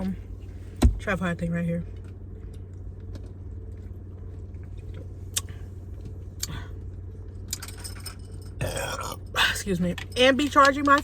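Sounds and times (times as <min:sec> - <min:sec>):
car engine idling: 0:00.0 - 0:01.8.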